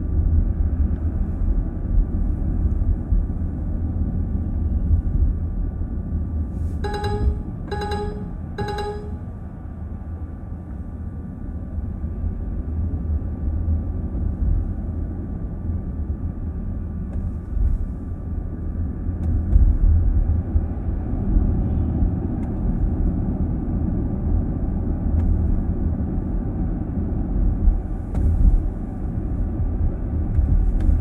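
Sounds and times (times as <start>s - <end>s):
road and tyre rumble: 11.8s - 31.0s.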